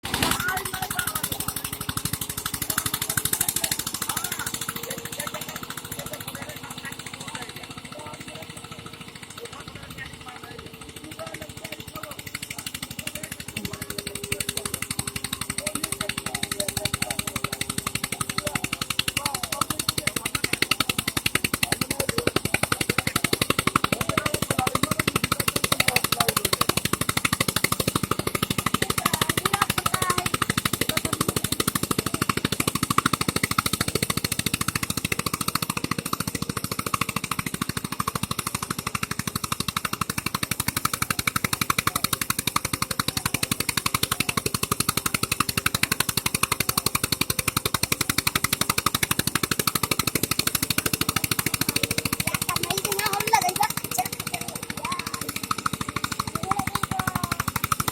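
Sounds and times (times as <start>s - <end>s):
tractor engine running: 0.0s - 57.9s.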